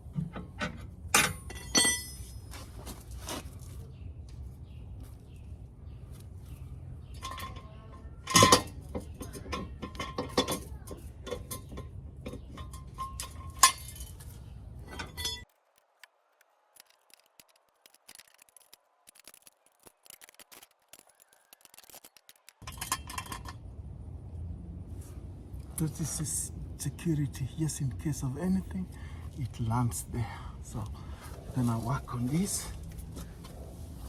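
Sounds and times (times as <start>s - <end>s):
metal tools clinking: 0.1s - 3.0s, 7.0s - 15.5s, 22.6s - 23.7s.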